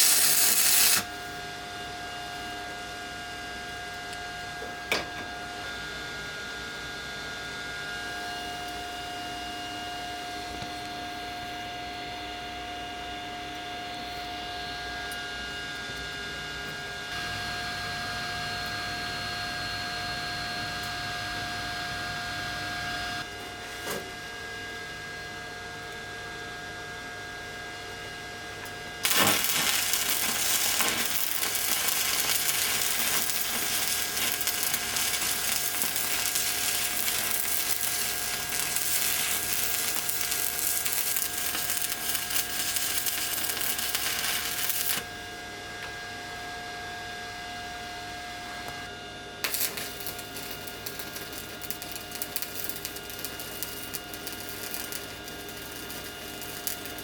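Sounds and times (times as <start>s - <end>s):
welding arc crackling and sizzling: 0.0s - 1.4s, 29.0s - 45.2s, 49.4s - 57.0s
welding machine whine and hum: 0.0s - 57.0s.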